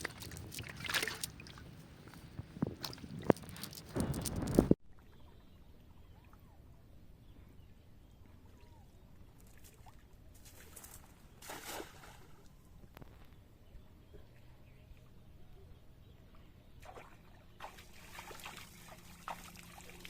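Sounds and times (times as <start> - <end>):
water sloshing and trickling: 0.0 - 5.4, 9.3 - 12.6, 16.3 - 20.0.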